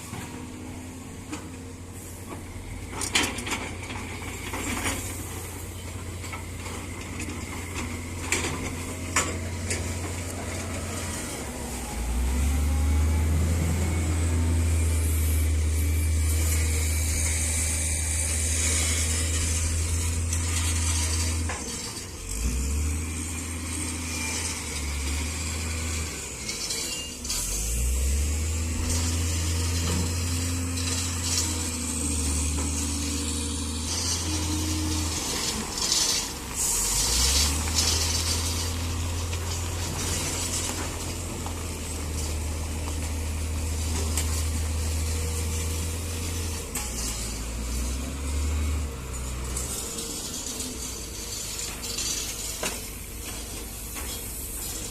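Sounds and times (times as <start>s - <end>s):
excavator diesel engine: 0.0s - 54.9s
bucket scraping and pouring shells: 30.8s - 42.3s.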